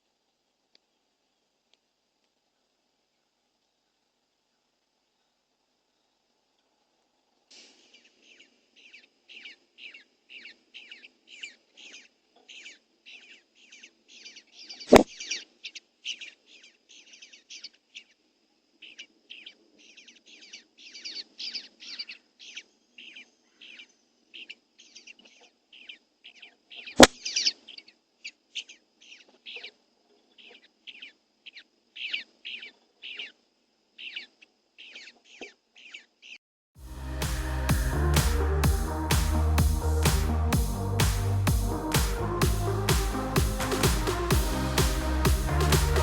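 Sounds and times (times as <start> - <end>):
small birds chirping: 18.8 - 33.4, 34.0 - 36.4.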